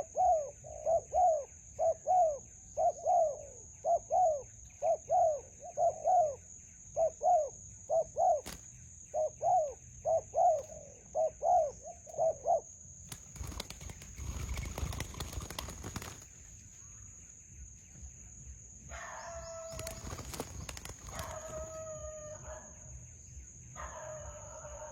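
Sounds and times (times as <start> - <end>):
dove cooing: 0.0 - 12.7, 18.9 - 22.8
high-pitched insect-like whine: 6.1 - 24.9
noisy rustling: 13.1 - 16.9.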